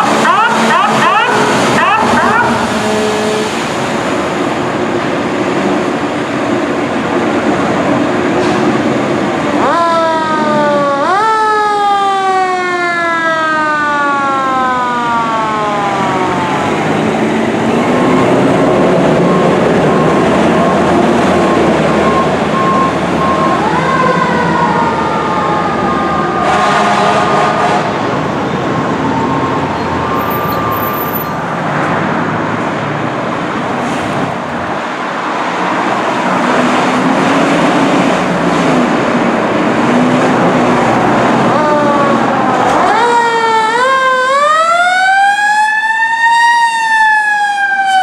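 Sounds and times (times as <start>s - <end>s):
traffic and engine noise: 0.0s - 45.6s
fire engine siren winding: 28.9s - 31.5s, 41.9s - 48.0s.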